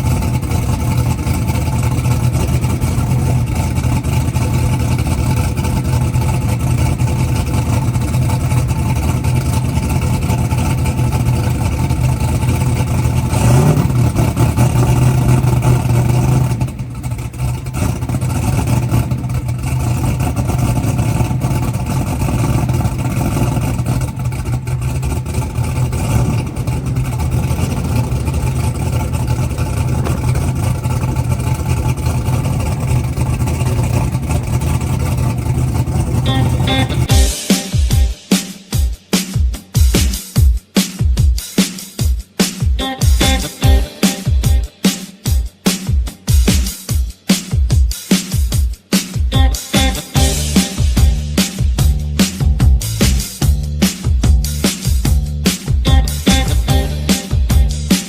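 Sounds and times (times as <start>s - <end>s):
race engine running: 0.0s - 40.2s, 42.8s - 47.0s, 49.3s - 58.0s.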